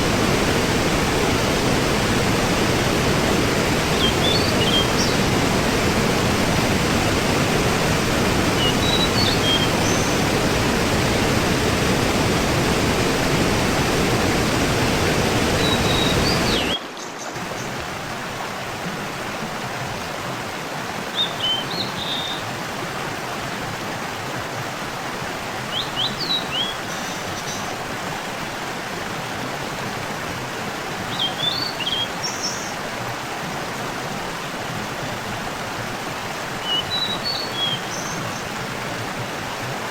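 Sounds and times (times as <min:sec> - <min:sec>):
waterfall rushing: 0:00.0 - 0:39.9
small birds chirping: 0:03.6 - 0:05.4, 0:07.9 - 0:10.6, 0:15.4 - 0:16.8.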